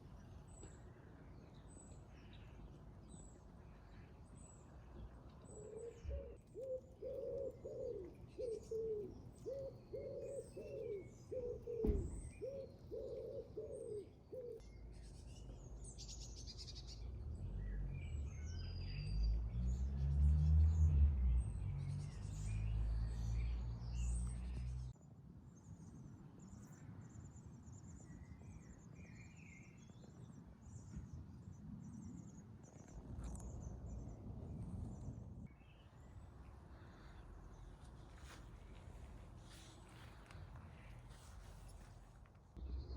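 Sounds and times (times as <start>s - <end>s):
songbirds chirping: 0.0s - 42.9s
pigeon cooing: 5.7s - 14.6s
low rumble: 42.6s - 42.9s.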